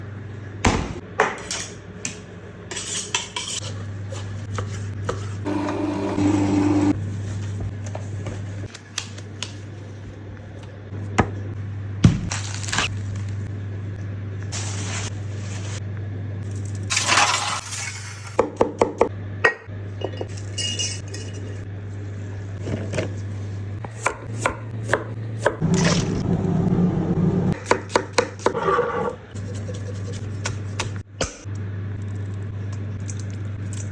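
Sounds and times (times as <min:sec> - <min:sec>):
steady low hum: 0:24.6 - 0:27.7.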